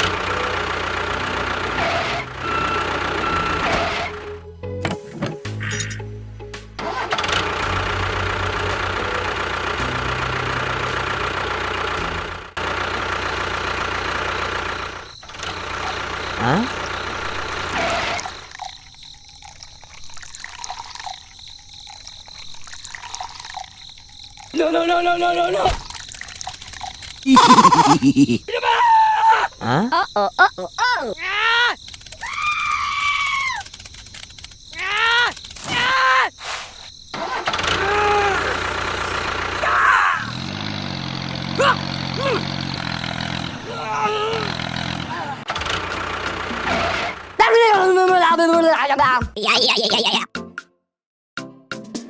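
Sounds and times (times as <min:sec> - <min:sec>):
engine starting and idling: 0:00.0 - 0:06.0, 0:06.8 - 0:18.7, 0:24.4 - 0:28.0, 0:37.1 - 0:47.4
water trickling: 0:15.1 - 0:28.0
short falling cries: 0:27.3 - 0:30.0, 0:30.7 - 0:33.6, 0:37.2 - 0:38.7, 0:39.6 - 0:40.3, 0:43.6 - 0:45.5.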